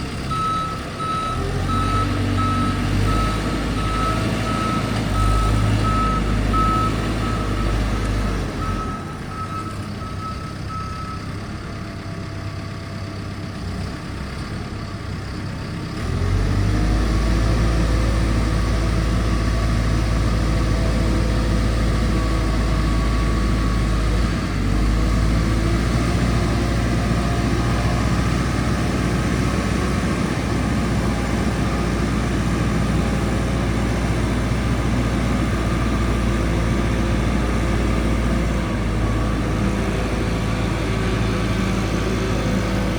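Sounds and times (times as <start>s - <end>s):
diesel engine running: 0.0s - 42.9s
reverse alarm beeping: 0.3s - 7.8s.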